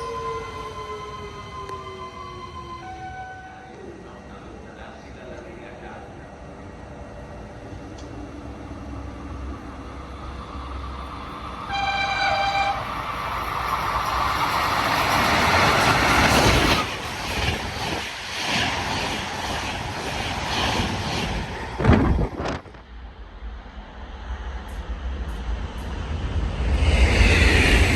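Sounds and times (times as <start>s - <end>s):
train passing with rushing roar: 0.0s - 27.9s
train horn blast: 2.8s - 3.8s, 11.7s - 13.1s.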